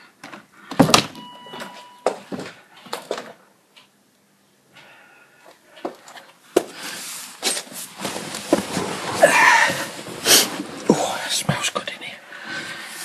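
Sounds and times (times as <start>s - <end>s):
rustling: 5.7s - 11.0s.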